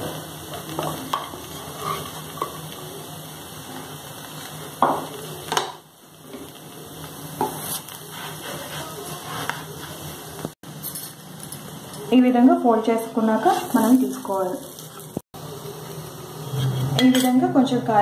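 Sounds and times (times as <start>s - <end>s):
dosa sizzling on pan: 0.0s - 18.0s
wooden spatula scraping pan: 1.2s - 2.5s, 7.4s - 10.2s, 13.4s - 15.2s, 16.4s - 17.1s.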